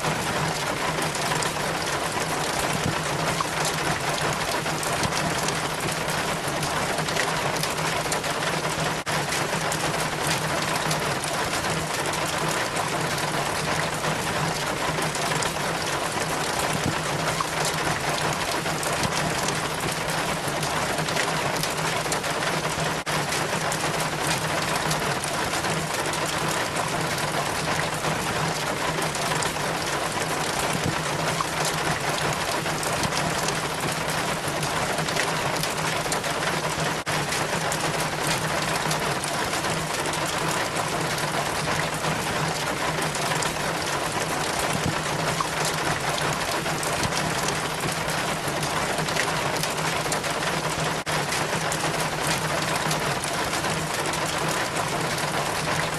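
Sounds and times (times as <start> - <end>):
rainwater trickling down rain chain: 0.0 - 55.9.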